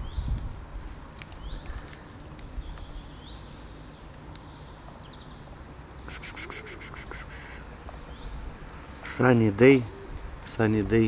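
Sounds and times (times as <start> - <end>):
songbird whistled call: 6.0 - 8.0.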